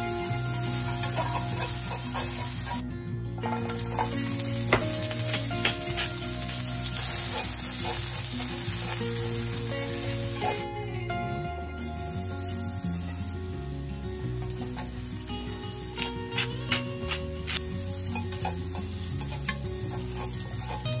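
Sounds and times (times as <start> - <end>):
vegetables sizzling in a pan: 0.0 - 2.8, 3.4 - 10.6, 11.8 - 21.0
chopsticks clicking against pan: 16.0 - 21.0.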